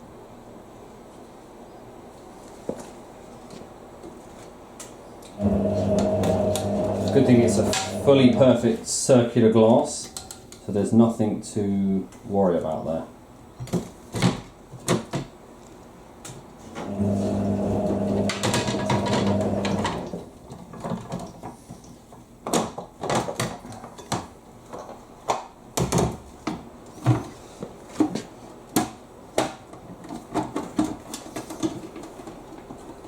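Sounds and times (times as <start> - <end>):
steady low hum: 5.2 - 13.5
plastic parts clicking and knocking: 20.5 - 27.3, 28.0 - 33.0.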